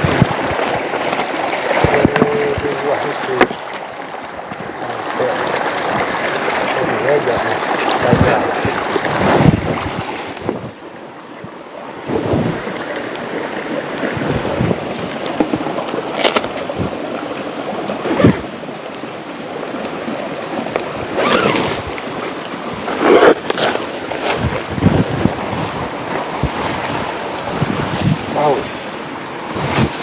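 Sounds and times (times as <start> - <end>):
river water rushing: 0.0 - 30.0.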